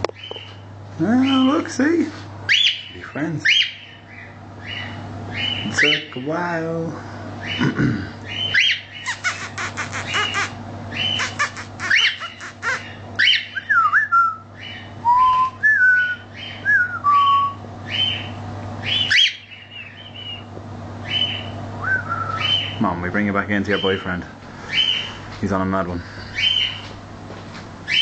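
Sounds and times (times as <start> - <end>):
cockatiel chirping and whistling: 8.4 - 14.0.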